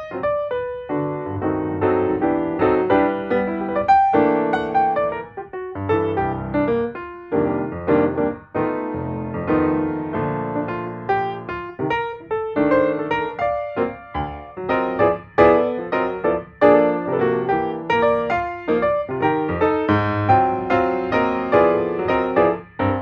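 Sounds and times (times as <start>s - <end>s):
gentle piano music: 0.0s - 23.0s.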